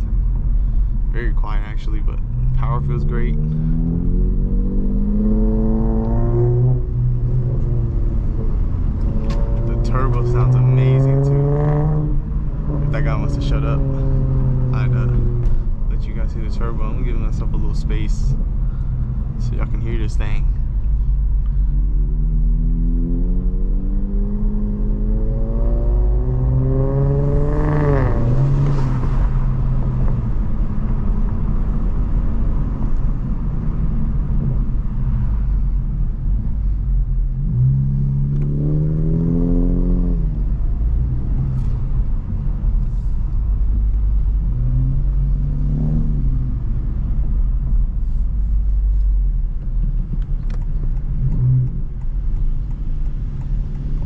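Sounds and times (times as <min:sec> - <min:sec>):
car engine accelerating hard: 0:00.0 - 0:54.0
road rumble: 0:00.0 - 0:54.0.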